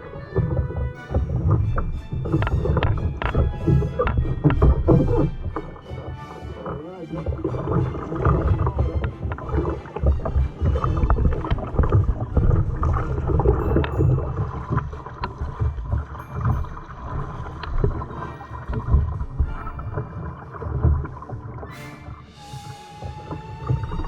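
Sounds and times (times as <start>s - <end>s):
wind on microphone: 0.0s - 5.6s
paddle splashing in water: 0.0s - 24.0s.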